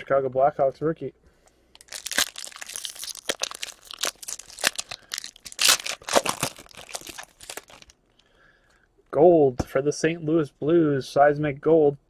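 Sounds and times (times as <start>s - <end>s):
foil wrapper tearing and crinkling: 1.8s - 8.0s.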